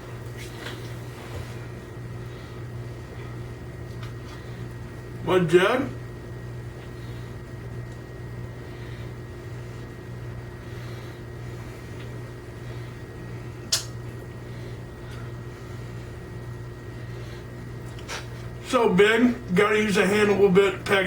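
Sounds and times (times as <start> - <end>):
low hum of fan: 0.0 - 21.0
sharp click: 13.7 - 14.0.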